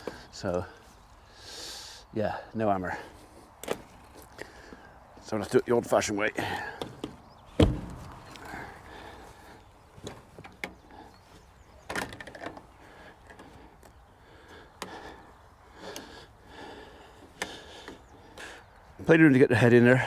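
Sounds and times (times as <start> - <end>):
sharp knocks on wood: 7.6 - 8.5.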